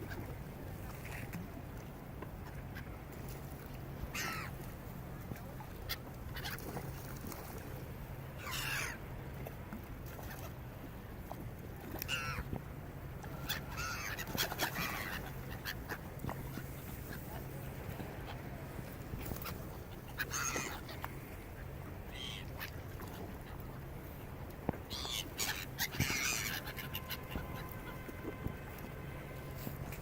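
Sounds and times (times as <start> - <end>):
birds harsh wavering cries: 4.1 - 4.5, 8.4 - 9.0, 13.4 - 16.7, 19.4 - 21.0, 24.9 - 28.1.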